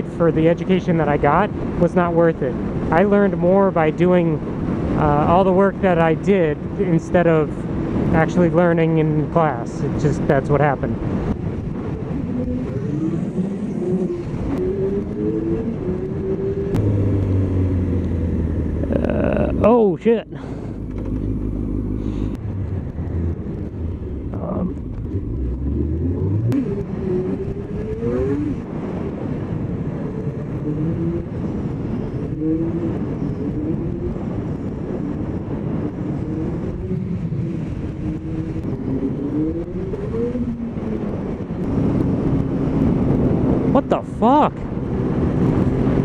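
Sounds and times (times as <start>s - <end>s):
wind and road noise: 0.0s - 46.0s
motorcycle engine accelerating: 10.9s - 19.9s, 20.5s - 46.0s.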